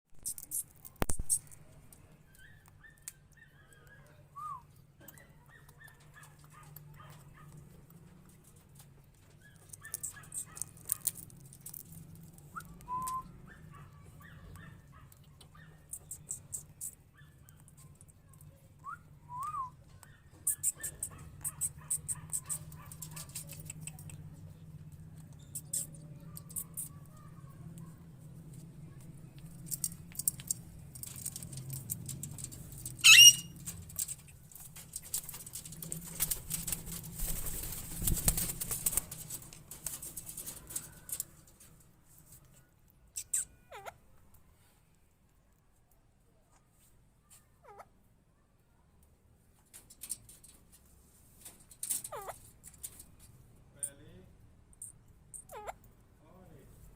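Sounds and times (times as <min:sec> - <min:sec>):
soft chattering: 0:13.3 - 0:41.6, 0:42.5 - 0:44.1
parakeet whistled calls: 0:33.0 - 0:33.5.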